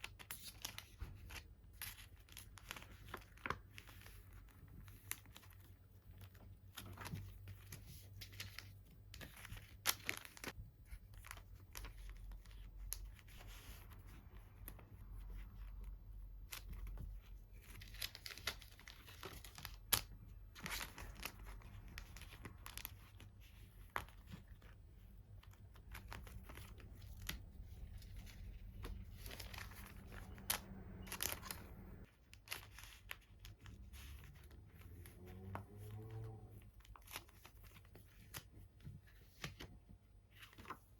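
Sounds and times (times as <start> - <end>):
plastic packaging crinkling: 25.5 - 33.7.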